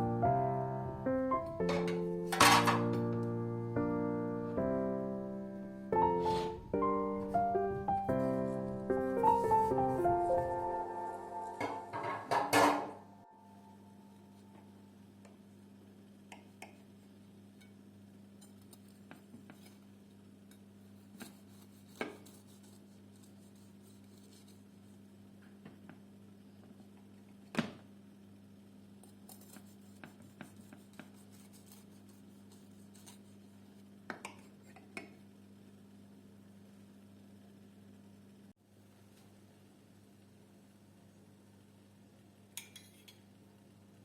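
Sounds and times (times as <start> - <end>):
tableware and cutlery clinking: 1.6 - 3.0, 11.6 - 13.0, 42.6 - 43.2.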